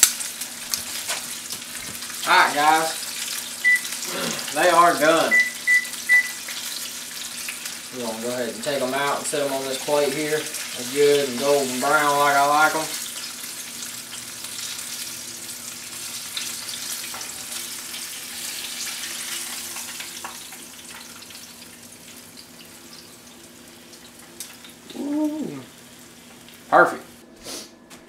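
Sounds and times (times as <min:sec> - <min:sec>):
meat sizzling in grease: 0:00.0 - 0:27.2
short voice-like sound: 0:24.9 - 0:25.7.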